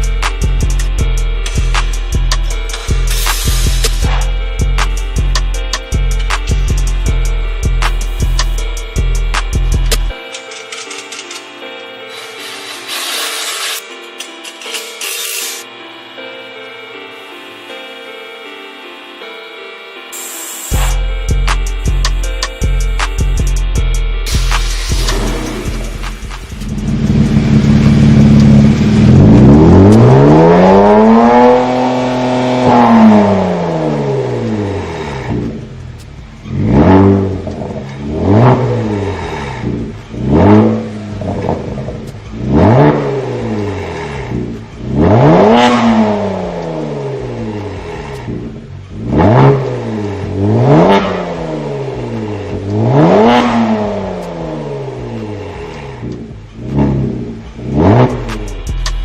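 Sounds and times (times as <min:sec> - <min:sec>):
car engine revving: 0:24.2 - 0:59.0.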